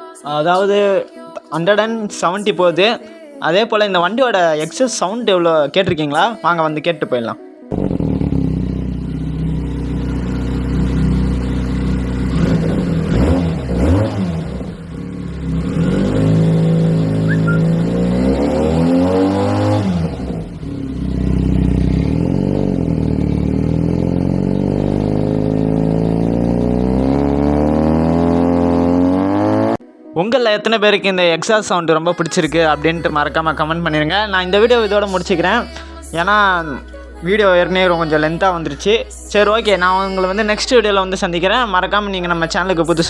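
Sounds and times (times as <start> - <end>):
motorcycle engine revving: 7.7 - 29.8.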